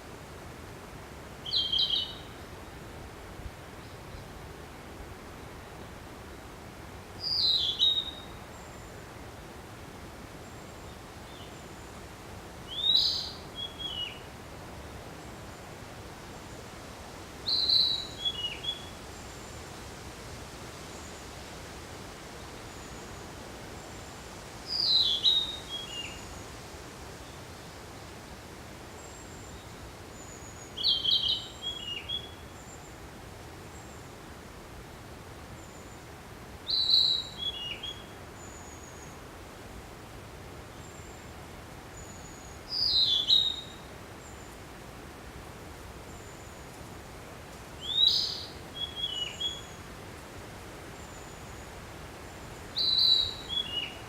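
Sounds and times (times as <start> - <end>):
steady hiss: 0.0 - 54.0
bird singing: 1.5 - 2.4, 7.2 - 8.9, 12.7 - 14.3, 17.5 - 18.9, 24.7 - 26.2, 30.2 - 32.8, 36.7 - 39.2, 42.0 - 44.5, 47.8 - 49.8, 52.7 - 54.0.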